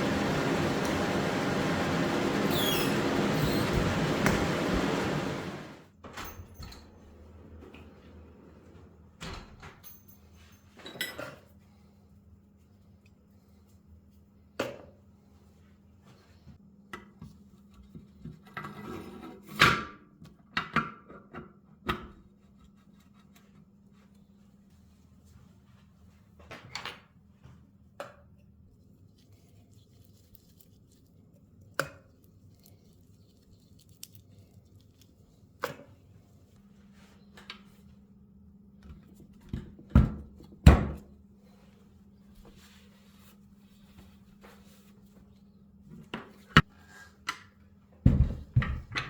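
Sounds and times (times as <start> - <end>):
faint steady hum: 0.0 - 5.8.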